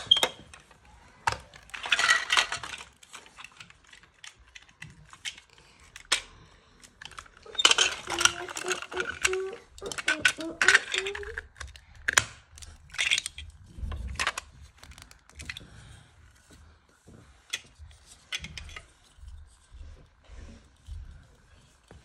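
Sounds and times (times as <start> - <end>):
plastic bricks clicking and clattering: 0.0 - 15.8
child's voice: 7.5 - 11.5.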